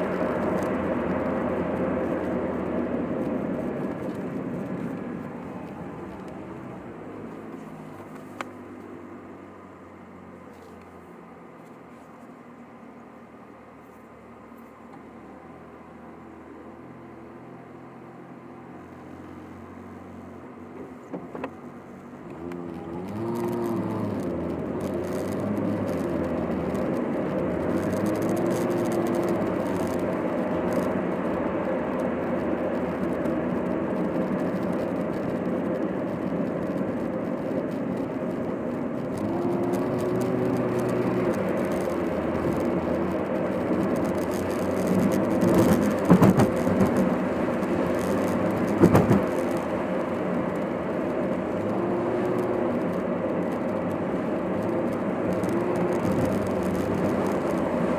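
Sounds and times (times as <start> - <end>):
road and engine noise: 0.0 - 57.9.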